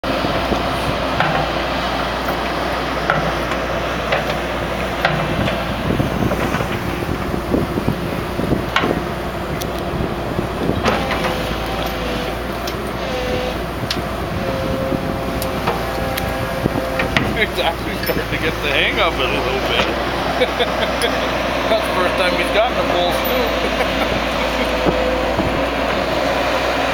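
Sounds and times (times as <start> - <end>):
excavator diesel engine running: 0.0 - 26.9
sharp knocks and clanks: 5.0 - 5.6, 17.0 - 20.0.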